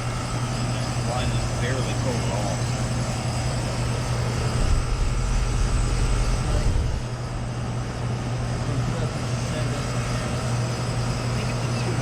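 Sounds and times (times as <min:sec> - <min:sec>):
air conditioner compressor and fan hum: 0:00.0 - 0:12.0
deep low rumble: 0:04.5 - 0:07.5.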